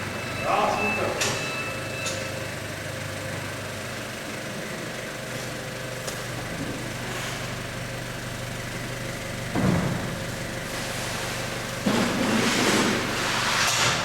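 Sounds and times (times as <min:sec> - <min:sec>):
machine humming and hissing: 0:05.1 - 0:14.0.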